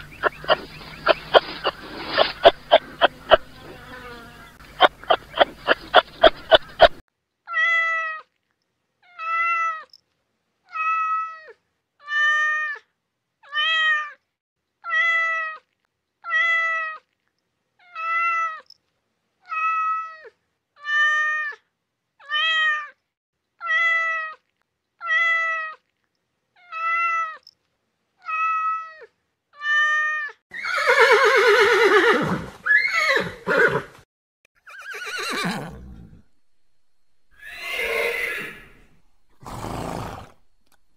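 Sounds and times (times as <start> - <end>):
horse neighing: 0.0 - 7.0, 30.5 - 33.9, 34.6 - 36.4, 37.3 - 40.5.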